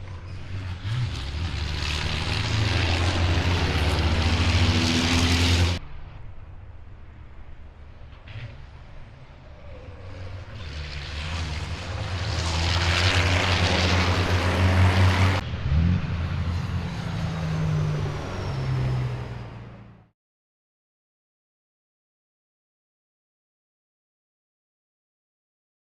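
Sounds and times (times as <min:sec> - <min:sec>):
engine rising in pitch: 0:00.0 - 0:05.8, 0:09.3 - 0:20.1
truck diesel engine passing: 0:00.0 - 0:20.1.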